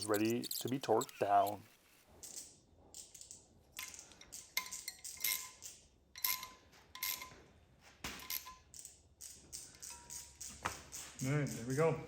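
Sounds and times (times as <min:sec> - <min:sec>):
wrench clinking on bolts: 0:02.2 - 0:07.4, 0:08.2 - 0:12.0.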